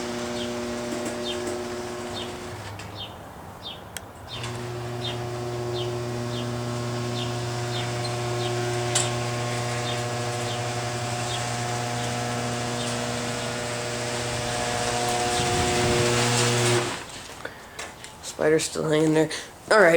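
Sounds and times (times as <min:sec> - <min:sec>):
garage door opener motor humming: 0:00.0 - 0:03.0, 0:04.3 - 0:17.3
bird chirping: 0:02.1 - 0:08.7, 0:09.8 - 0:13.7.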